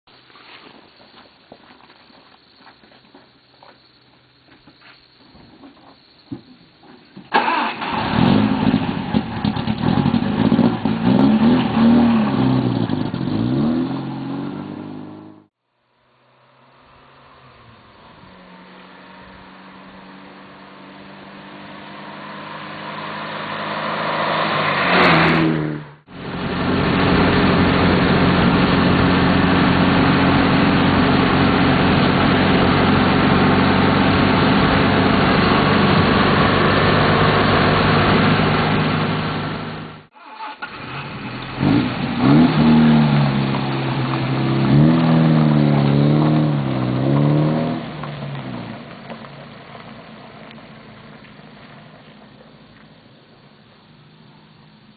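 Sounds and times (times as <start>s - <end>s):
car engine cruising: 7.3s - 54.9s
car engine revving: 7.4s - 15.5s, 16.2s - 51.8s
car driving past: 7.4s - 52.5s.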